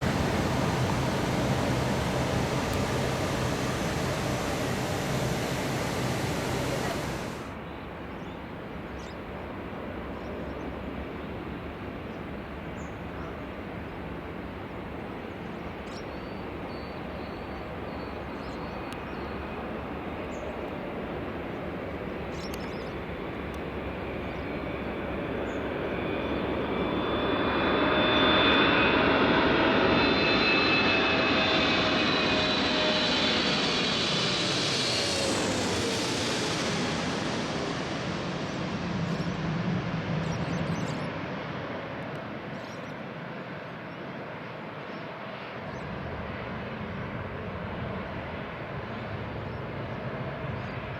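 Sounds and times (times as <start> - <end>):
jet passing overhead: 0.0 - 7.5, 23.0 - 42.5
whining fan tone: 0.0 - 7.5.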